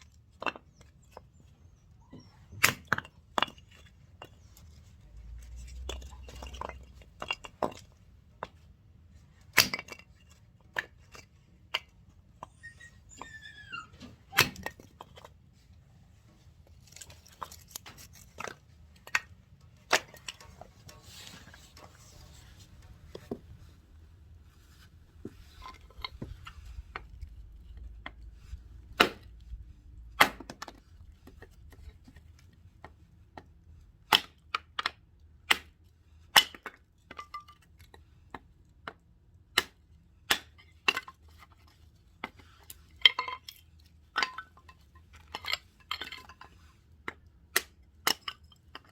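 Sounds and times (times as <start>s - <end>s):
wood splitting knocks and cracks: 28.9s - 29.4s, 30.1s - 30.8s.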